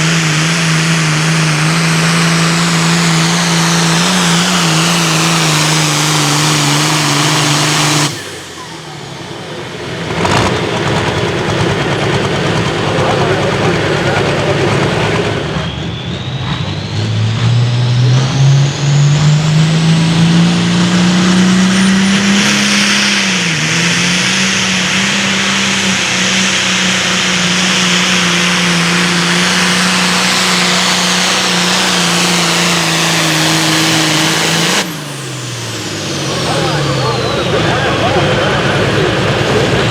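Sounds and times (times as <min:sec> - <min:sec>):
diesel tractor engine at full throttle: 0:00.0 - 0:39.9
high turbo whistle: 0:14.0 - 0:38.4.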